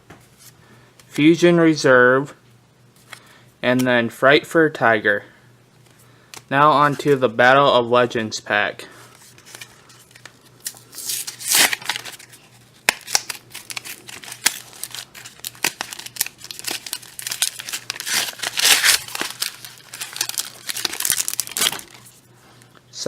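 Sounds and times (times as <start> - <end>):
foil wrapper crinkling: 9.3 - 22.2.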